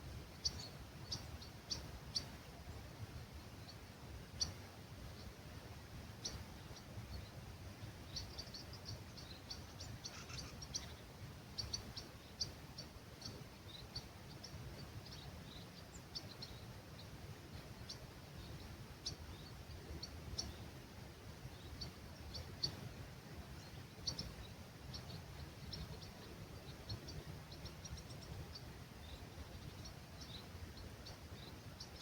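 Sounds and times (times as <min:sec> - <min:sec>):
low rumble of breeze: 0:00.0 - 0:32.0
small birds chirping: 0:00.0 - 0:32.0.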